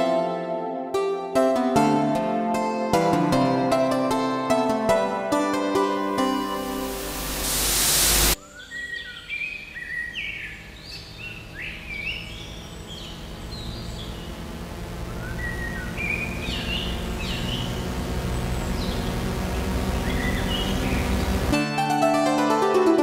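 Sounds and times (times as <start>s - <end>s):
loud white noise hiss: 6.0s - 23.0s
birds chirping: 7.8s - 21.6s
low steady hum: 9.4s - 21.6s.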